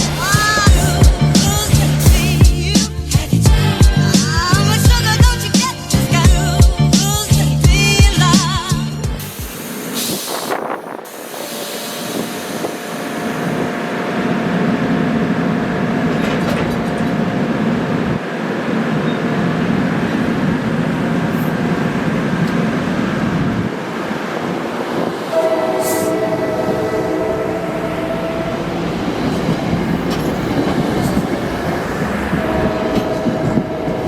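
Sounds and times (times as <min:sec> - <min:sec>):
train rumbling along track: 0:00.0 - 0:34.0
train horn chord: 0:25.3 - 0:28.9, 0:32.3 - 0:34.0.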